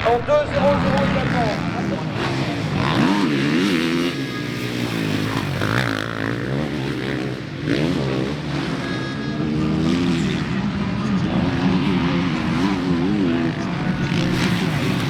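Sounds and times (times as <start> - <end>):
motocross bikes revving: 0.2 - 15.0.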